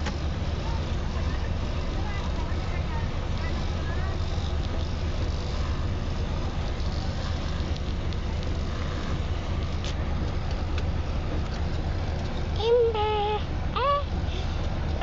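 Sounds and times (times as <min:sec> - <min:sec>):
vehicle engine rumble and hiss: 0:00.0 - 0:15.0.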